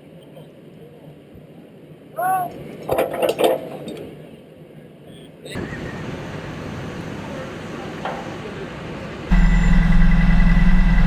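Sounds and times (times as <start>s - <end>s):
low engine hum: 5.6s - 11.0s
short pitched squeal: 9.3s - 11.0s.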